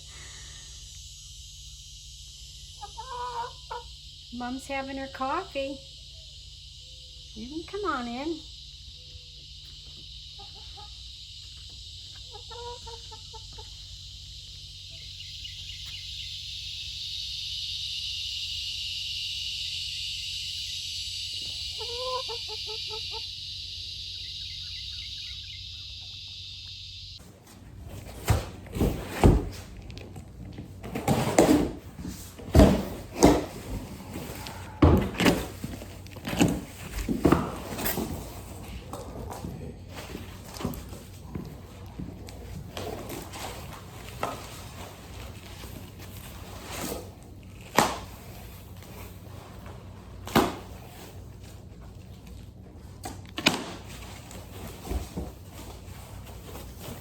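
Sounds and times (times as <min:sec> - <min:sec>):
hens clucking softly: 0:02.8 - 0:03.9, 0:12.1 - 0:13.9, 0:21.7 - 0:23.3.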